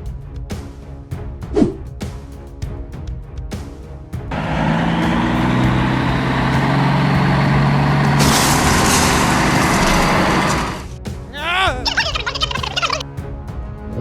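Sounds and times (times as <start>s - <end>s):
truck engine running: 4.3s - 11.0s.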